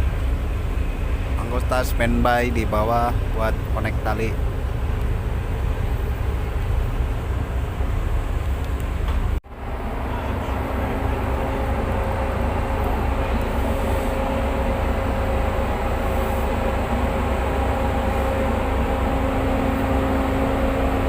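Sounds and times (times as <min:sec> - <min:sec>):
boat diesel engines rumbling: 0:00.0 - 0:21.0.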